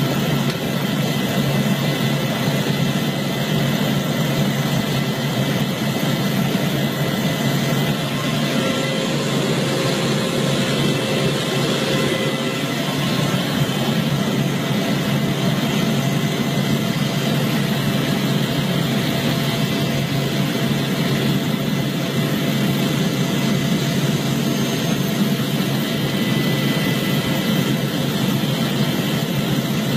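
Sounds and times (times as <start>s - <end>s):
faint whining tones: 0.0s - 29.9s
mechanical roar: 7.7s - 15.5s.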